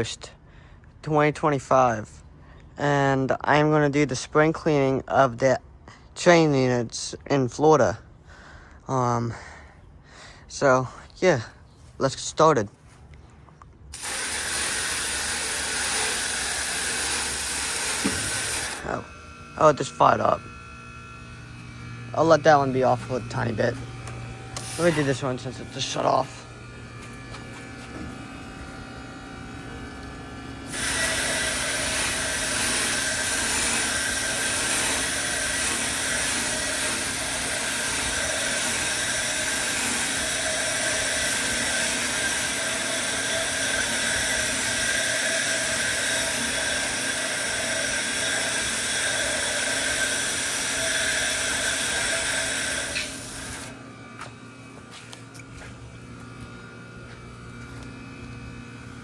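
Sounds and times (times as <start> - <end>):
loud hissing blast: 14.0 - 19.0, 24.6 - 26.0, 30.7 - 53.7.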